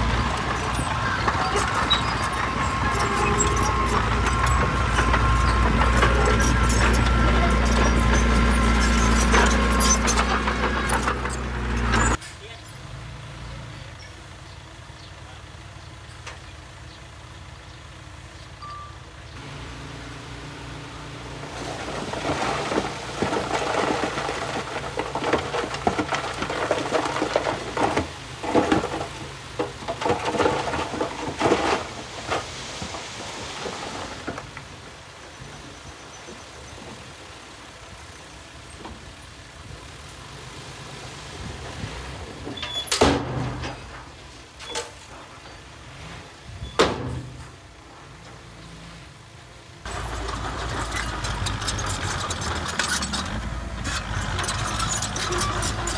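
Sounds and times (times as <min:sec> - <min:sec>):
irregular clattering and rumbling: 0:00.0 - 0:12.2, 0:19.4 - 0:35.8, 0:41.5 - 0:55.9
diesel machinery engine hum: 0:00.0 - 0:55.9.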